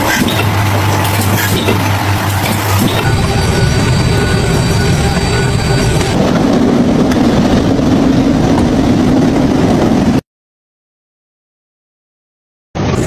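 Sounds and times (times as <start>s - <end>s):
machinery clattering rumble: 0.0s - 10.2s
steady low hum: 0.7s - 9.5s.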